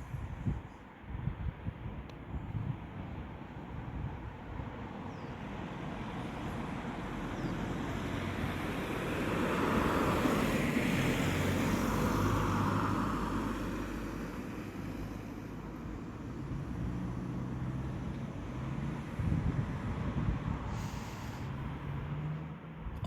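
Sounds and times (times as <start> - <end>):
wind noise on microphone: 0.0 - 5.3, 15.7 - 22.2
vehicle passing in distance: 5.5 - 23.0.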